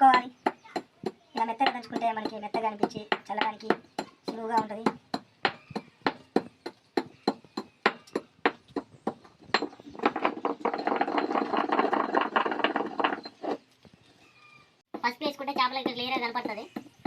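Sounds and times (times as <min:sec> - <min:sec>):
dense rattling and scraping: 0:09.1 - 0:13.9
grains pounded in a mortar: 0:09.5 - 0:13.6.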